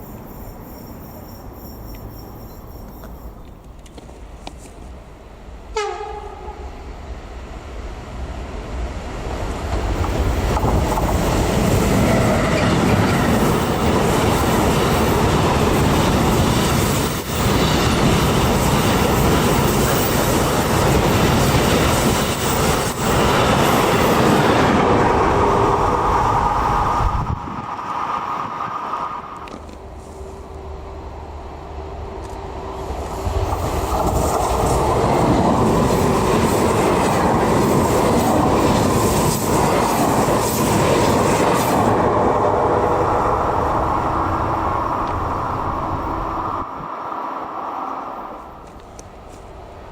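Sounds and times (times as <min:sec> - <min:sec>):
train rumble and wheels on rails: 0:00.0 - 0:49.9
train horn blast: 0:05.7 - 0:06.8.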